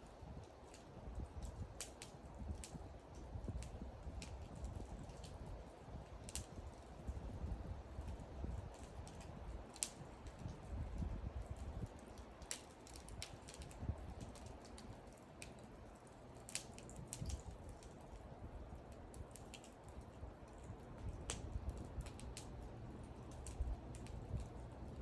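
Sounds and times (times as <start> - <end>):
wood fire crackling and popping: 0.0 - 25.0
low steady rumble: 17.0 - 25.0.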